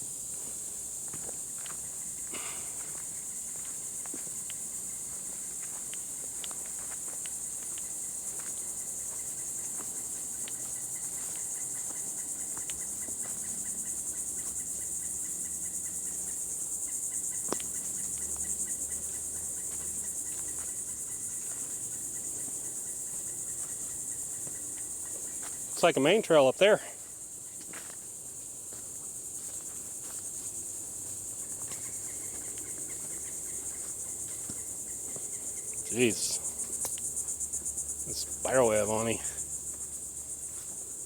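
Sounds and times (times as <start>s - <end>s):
crickets trilling: 0.0s - 41.0s
faint clicks: 36.8s - 37.1s.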